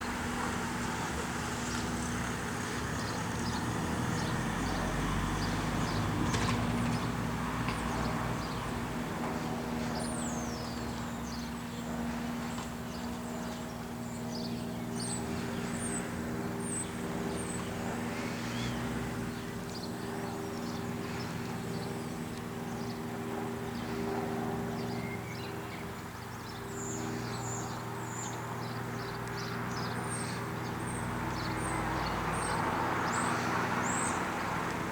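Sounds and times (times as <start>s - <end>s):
light aircraft engine droning: 0.0s - 34.9s
birds chirping: 24.8s - 34.9s.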